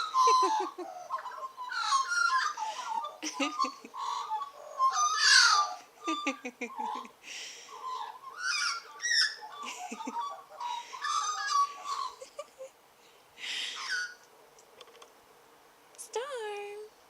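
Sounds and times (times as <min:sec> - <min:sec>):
harsh rasping bird call: 0:00.0 - 0:12.2, 0:13.6 - 0:14.2
magpies warbling and chattering: 0:00.0 - 0:12.6, 0:13.5 - 0:14.2.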